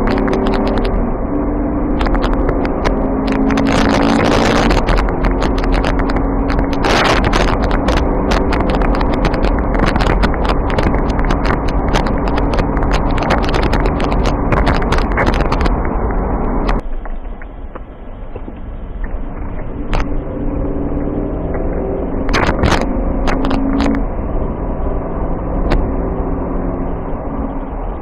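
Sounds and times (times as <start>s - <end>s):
vehicle engine humming: 0.0s - 28.0s
sharp clicks: 1.8s - 20.2s.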